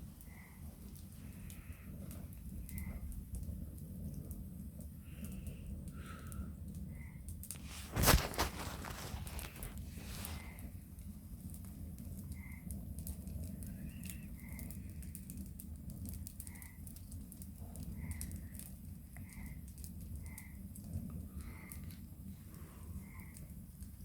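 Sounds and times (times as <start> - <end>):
campfire crackling: 0.0 - 24.0.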